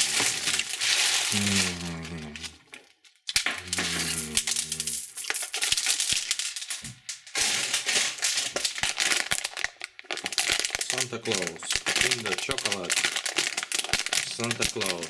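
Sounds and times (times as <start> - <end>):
candy wrappers crinkling: 0.0 - 15.0.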